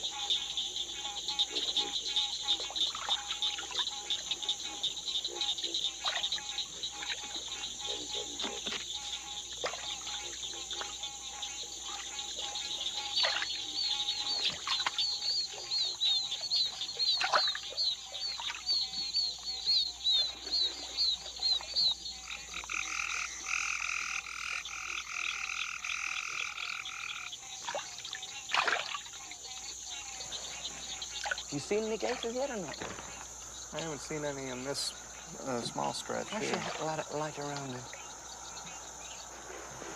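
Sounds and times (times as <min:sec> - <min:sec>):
frogs and insects chorus: 0:00.0 - 0:39.9.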